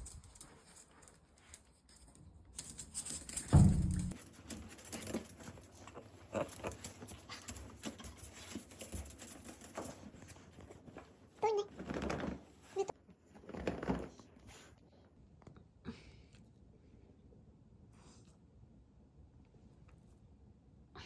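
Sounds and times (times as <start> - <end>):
dog paws pattering: 0.0 - 14.1
dull thump: 3.5 - 4.2.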